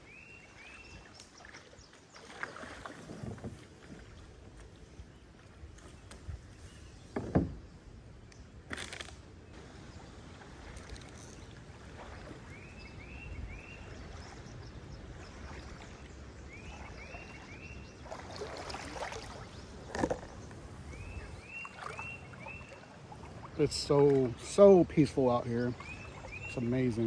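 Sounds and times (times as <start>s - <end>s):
creek water running: 0.0s - 8.0s, 9.5s - 27.0s
songbird singing slurred notes: 12.4s - 22.9s, 23.5s - 27.0s.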